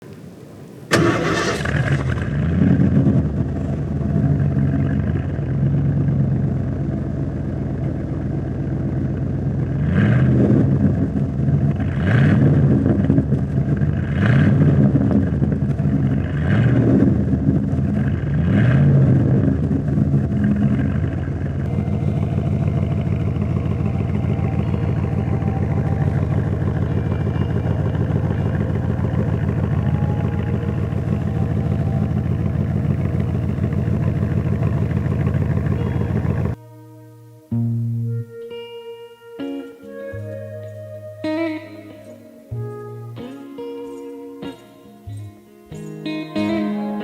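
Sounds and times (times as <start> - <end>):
truck engine idling and revving: 0.0 - 36.6.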